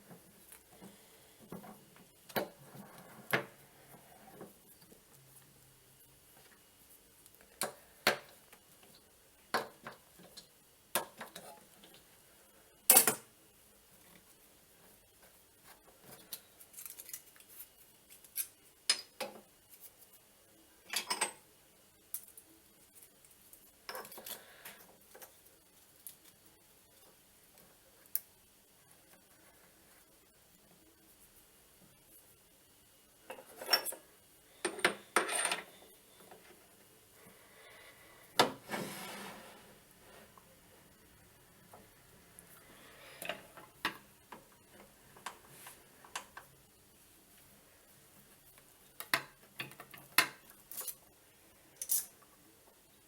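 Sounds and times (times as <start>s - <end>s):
metal tools clinking and tapping: 20.9s - 21.4s, 23.9s - 24.4s, 33.3s - 34.0s, 34.6s - 35.8s, 51.8s - 52.2s.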